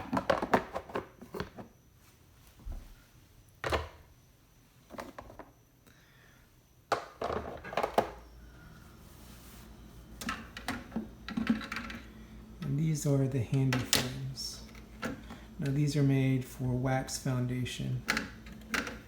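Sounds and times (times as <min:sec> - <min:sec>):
plastic parts clattering: 0:00.0 - 0:01.6, 0:06.9 - 0:08.2, 0:10.2 - 0:12.0, 0:18.0 - 0:19.0.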